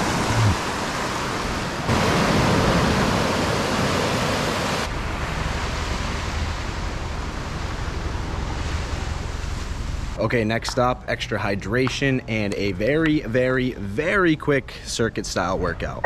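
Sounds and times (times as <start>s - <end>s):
ocean surf washing onto beach: 0.0s - 10.9s.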